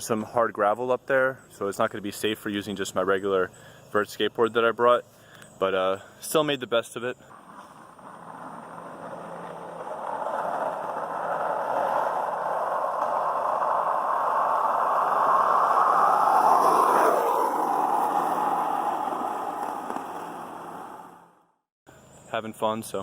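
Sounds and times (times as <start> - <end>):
skateboard wheels rolling on pavement: 0.0 - 21.6
skateboard clack: 7.3 - 21.3.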